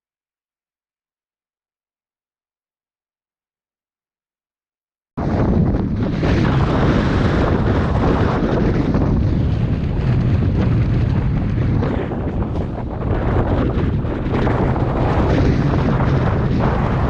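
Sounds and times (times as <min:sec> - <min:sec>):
wind buffeting microphone: 0:05.2 - 0:17.0.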